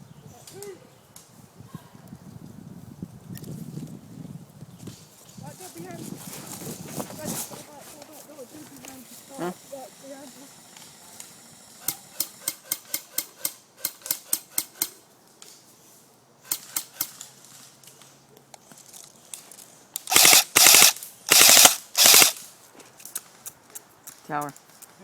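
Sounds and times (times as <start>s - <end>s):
full-auto airsoft bursts: 20.1s - 22.4s.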